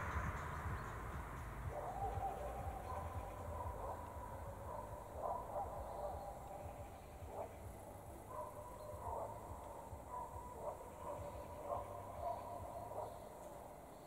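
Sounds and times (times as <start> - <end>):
low rumble: 0.0 - 4.6
soft bird calls: 0.0 - 14.0.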